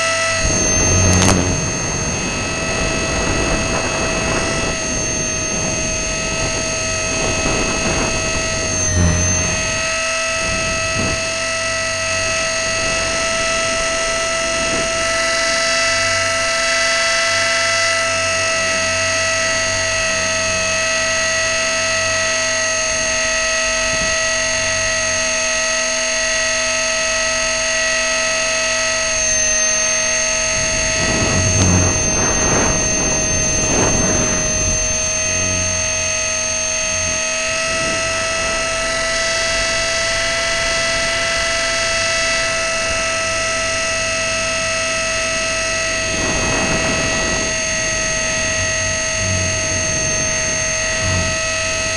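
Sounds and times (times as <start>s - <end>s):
helicopter motor whining: 0.0s - 51.9s
rush of noise: 0.1s - 15.4s, 28.9s - 51.9s.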